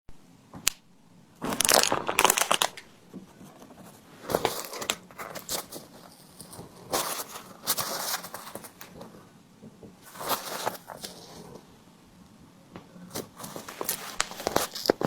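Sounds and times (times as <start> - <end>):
packaging crinkling and tearing: 1.4 - 3.0, 13.1 - 15.0.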